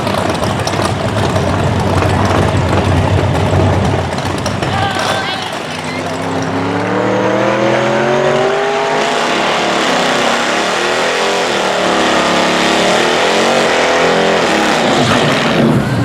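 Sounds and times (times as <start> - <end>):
car engines at full throttle: 0.0 - 16.0
tyre noise: 0.0 - 16.0.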